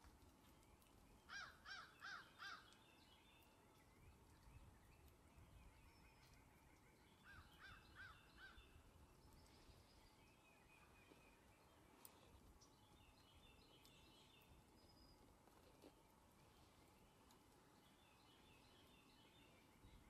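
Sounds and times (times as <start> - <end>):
faint bird calls: 1.2 - 3.2, 4.5 - 12.4.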